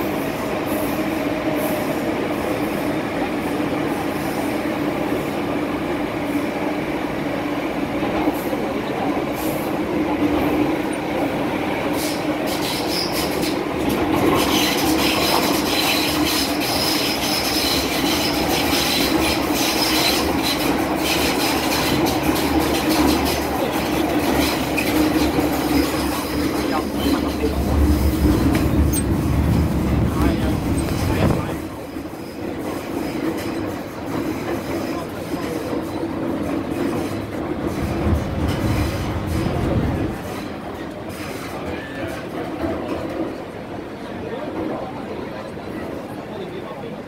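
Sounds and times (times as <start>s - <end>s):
train rumbling through tunnel: 0.0s - 47.0s
wheels screeching on rail: 8.2s - 43.4s.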